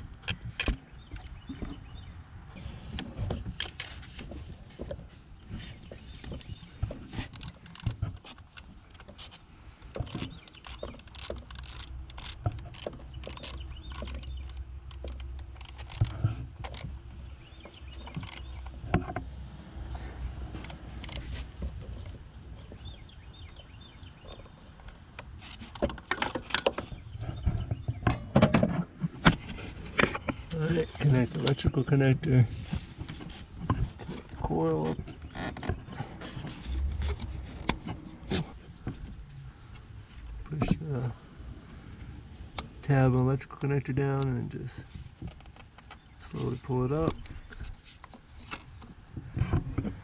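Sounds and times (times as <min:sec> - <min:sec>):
tools clicking and clattering: 0:06.3 - 0:17.0, 0:17.9 - 0:18.8, 0:20.6 - 0:21.4.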